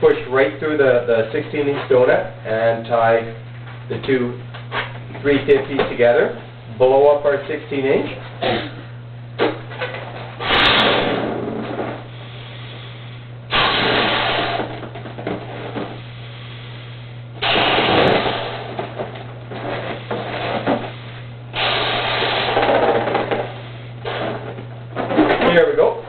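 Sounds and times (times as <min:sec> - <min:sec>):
balloon being inflated: 0:10.4 - 0:14.9, 0:15.6 - 0:19.0, 0:19.6 - 0:24.6.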